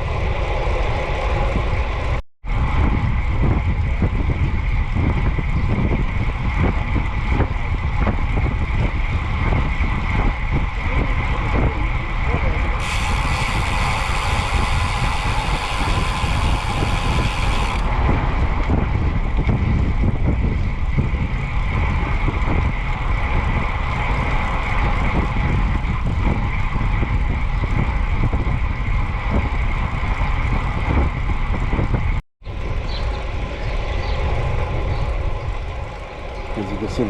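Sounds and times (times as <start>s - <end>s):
wind buffeting microphone: 0.0s - 37.0s
road and traffic noise: 6.0s - 26.1s, 32.4s - 37.0s.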